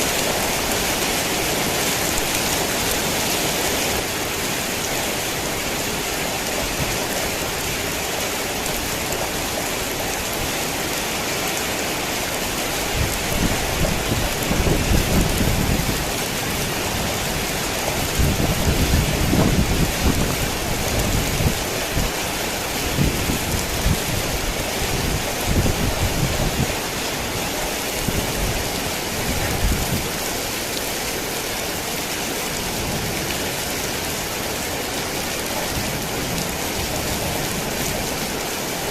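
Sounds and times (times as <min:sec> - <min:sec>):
heavy rain falling: 0:00.0 - 0:38.9
low rolling thunder: 0:13.0 - 0:22.2.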